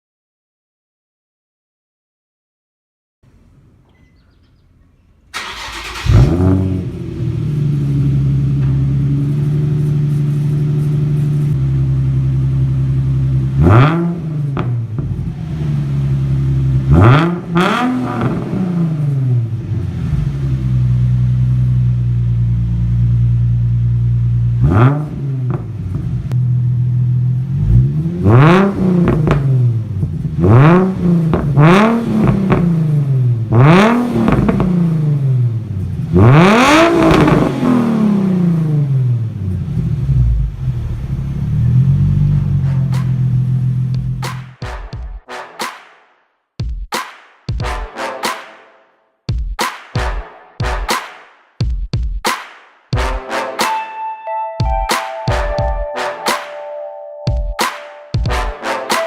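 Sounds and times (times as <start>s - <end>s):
car engine idling and revving: 5.2s - 44.6s.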